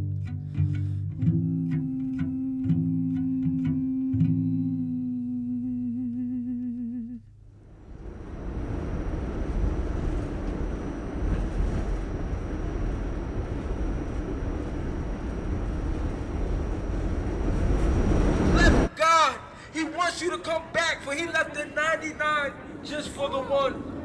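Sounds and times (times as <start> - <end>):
instrumental music with wavering note: 0.0 - 7.0
low rumbling noise: 0.0 - 19.7.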